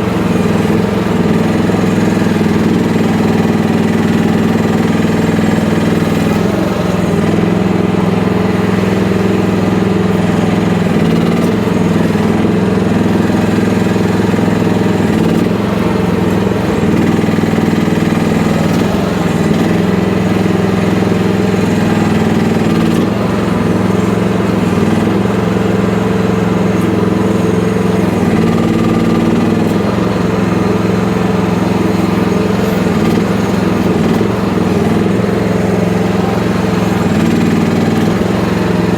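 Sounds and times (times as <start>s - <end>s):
small excavator engine running: 0.0s - 38.9s.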